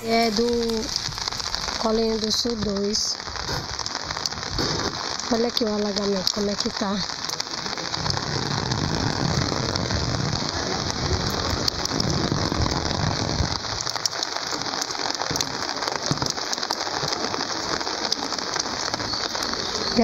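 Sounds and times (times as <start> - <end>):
rain hissing on flooded street: 0.0 - 20.0
raindrop ticks: 0.0 - 20.0
low rumble: 7.0 - 14.0.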